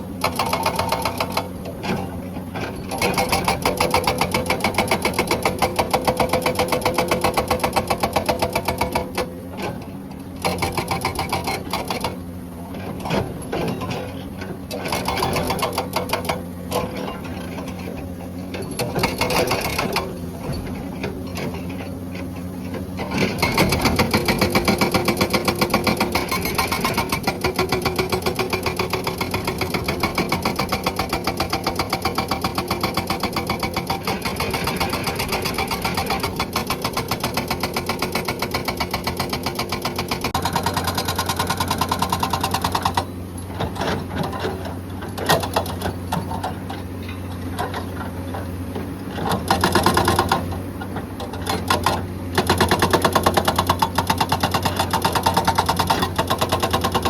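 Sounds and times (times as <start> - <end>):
excavator engine hum: 0.0 - 57.0
hydraulic breaker hammering rock: 0.1 - 57.0.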